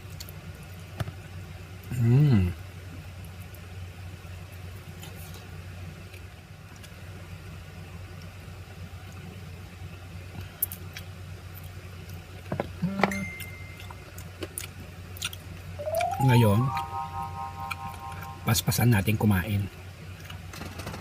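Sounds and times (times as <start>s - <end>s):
clicks and crackles of handling food: 0.0s - 1.2s, 4.5s - 7.0s, 10.3s - 12.8s, 13.9s - 15.7s
low electrical hum: 0.0s - 20.6s.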